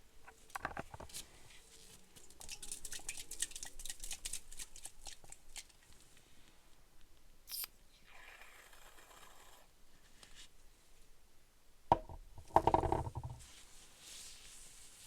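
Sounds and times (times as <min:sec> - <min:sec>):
sharp click: 0:07.5 - 0:07.8
soft rubbing rustle: 0:13.2 - 0:15.0.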